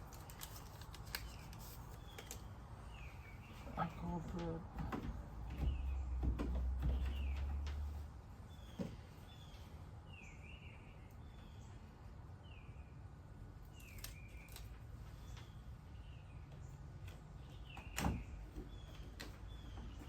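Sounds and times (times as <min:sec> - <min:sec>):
bird chirping: 0:05.5 - 0:07.6, 0:08.5 - 0:13.0.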